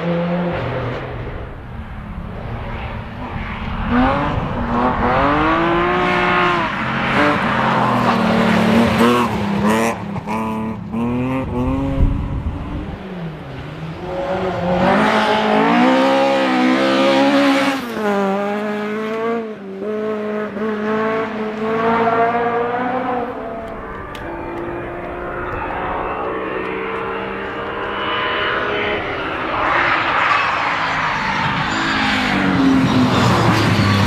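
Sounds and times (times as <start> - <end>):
rush of noise: 0.4 - 10.2, 22.0 - 34.0
rally car engine revving: 2.4 - 34.0.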